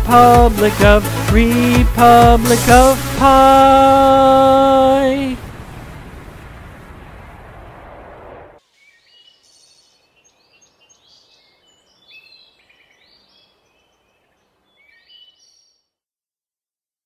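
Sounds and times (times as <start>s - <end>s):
loud rushing noise: 2.0s - 8.6s
birds chirping faintly: 8.6s - 16.0s.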